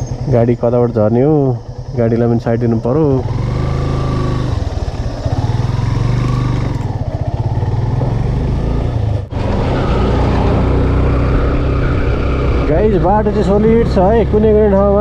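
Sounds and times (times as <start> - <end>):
motorcycle engine running: 0.0 - 15.0
wind noise: 9.3 - 14.6.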